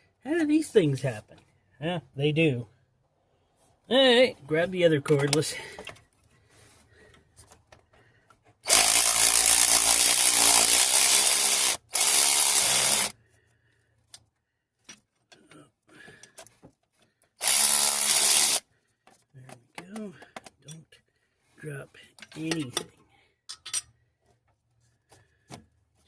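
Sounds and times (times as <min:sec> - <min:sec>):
cordless power tool motor: 0:08.7 - 0:13.2, 0:17.4 - 0:18.7.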